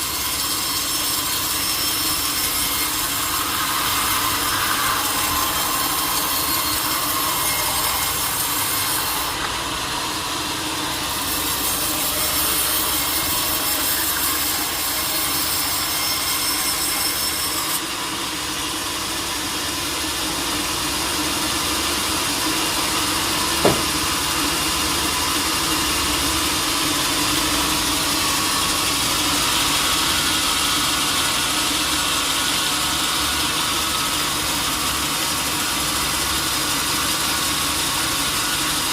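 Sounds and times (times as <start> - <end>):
saw cutting through log: 0.0 - 38.9
saw motor running: 0.0 - 38.9
sharp knock: 23.6 - 24.0.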